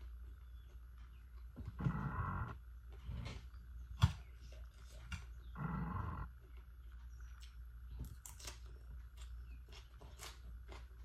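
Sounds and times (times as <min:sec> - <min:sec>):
wet chewing and smacking: 0:06.4 - 0:11.0.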